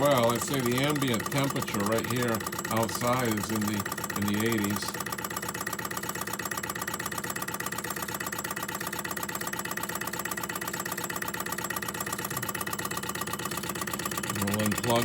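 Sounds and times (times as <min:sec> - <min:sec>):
hot air engine running: 0:00.0 - 0:05.5.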